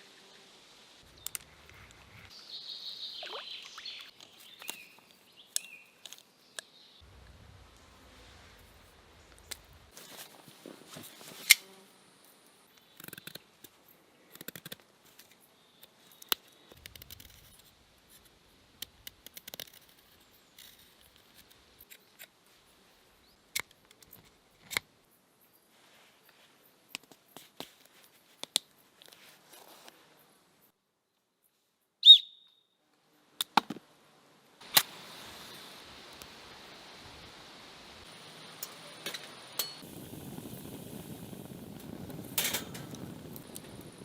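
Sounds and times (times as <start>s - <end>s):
sharp clicks and snips: 12.7s - 22.4s.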